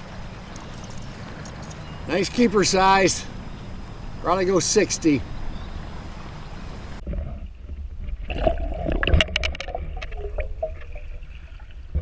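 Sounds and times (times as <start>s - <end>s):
water splashing and gurgling: 5.3s - 12.0s.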